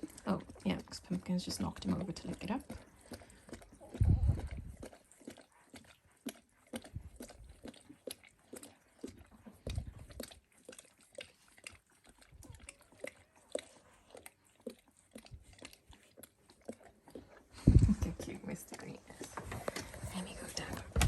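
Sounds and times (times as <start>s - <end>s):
wet licking and suckling sounds: 0.0s - 21.0s
soft low thumps: 4.0s - 4.8s, 17.6s - 18.7s.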